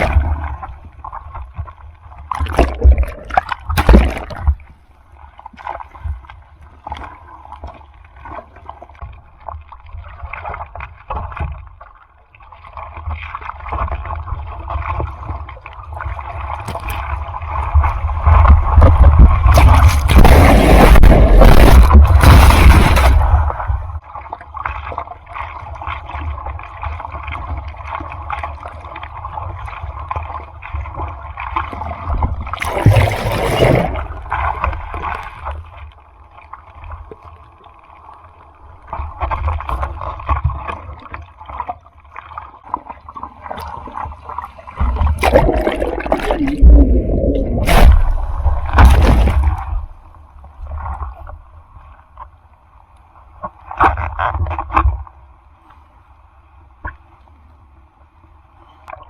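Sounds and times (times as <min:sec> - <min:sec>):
rough surf splashing: 0:18.3 - 0:24.0, 0:32.6 - 0:34.8, 0:44.8 - 0:50.1.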